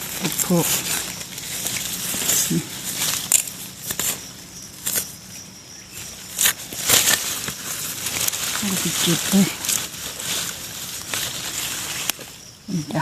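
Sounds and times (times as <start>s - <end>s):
dry leaves crunching under scratching: 0.0s - 13.0s.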